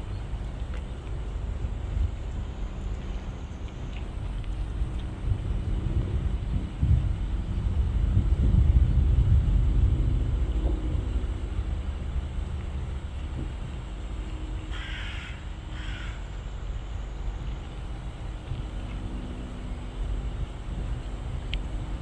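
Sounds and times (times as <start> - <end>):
steady low rumble: 0.0 - 22.0
crow cawing: 14.7 - 16.3.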